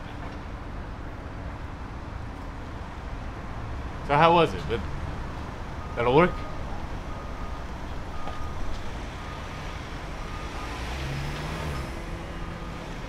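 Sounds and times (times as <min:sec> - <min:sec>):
city traffic rumble: 0:00.0 - 0:13.0
truck reversing alarm beeping: 0:04.7 - 0:13.0.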